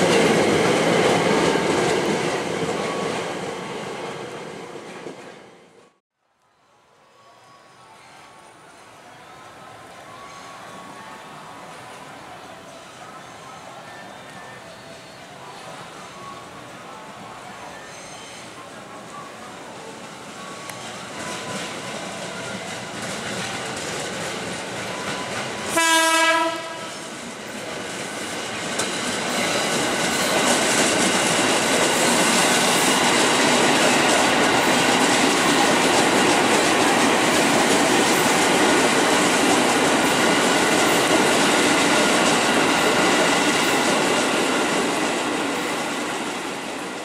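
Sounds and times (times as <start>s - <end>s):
train wheels on rails: 0.0s - 6.0s, 7.4s - 47.0s
train horn blast: 25.7s - 27.1s.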